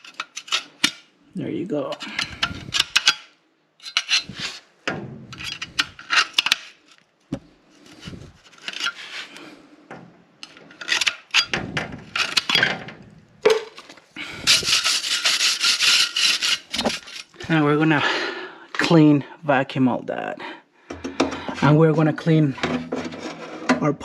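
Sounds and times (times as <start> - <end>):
tool scraping sheet metal: 1.9 - 4.7, 5.3 - 6.8, 7.8 - 9.5, 10.4 - 12.9, 14.2 - 17.4, 21.4 - 23.8.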